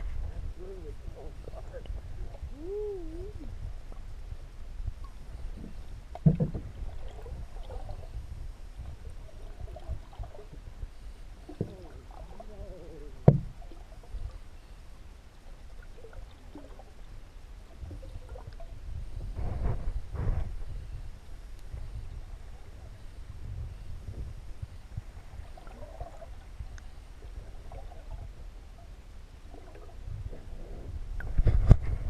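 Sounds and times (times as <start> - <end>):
low water rumble: 0.0 - 32.0
sharp knocks on canoe: 6.2 - 6.7, 13.2 - 13.5.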